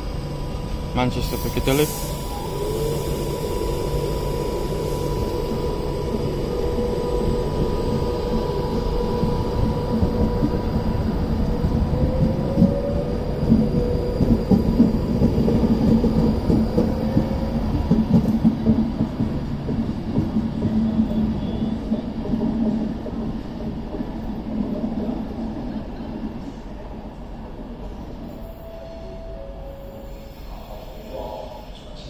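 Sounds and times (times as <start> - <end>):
electric train running hum: 0.0 - 32.0.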